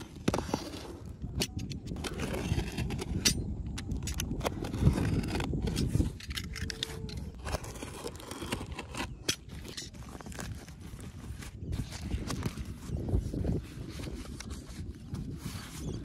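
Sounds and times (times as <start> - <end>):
sharp clicks and scrapes: 0.0 - 12.6.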